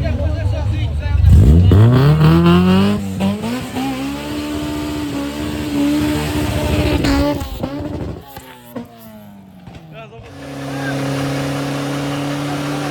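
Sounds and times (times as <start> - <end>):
car engine revving: 0.0 - 12.9.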